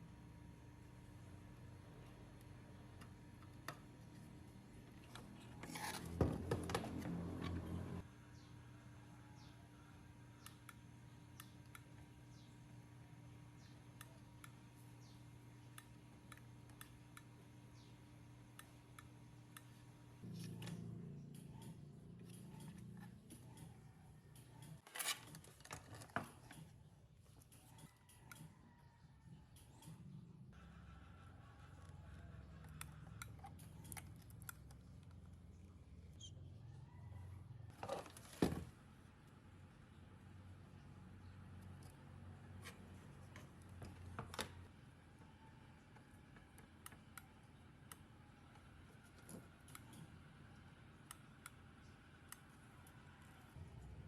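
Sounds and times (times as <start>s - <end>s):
rubbing and scraping: 4.9s - 8.0s.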